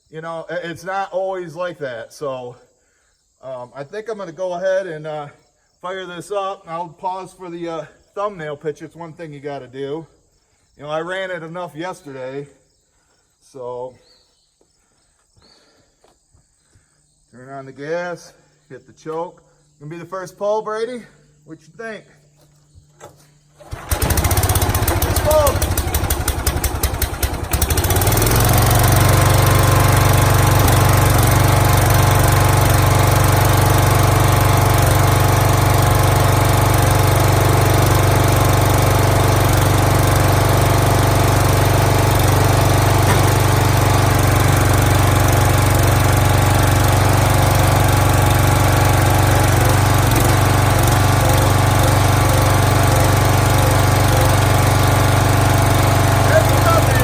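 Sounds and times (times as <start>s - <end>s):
small gasoline engine running: 23.6s - 57.0s.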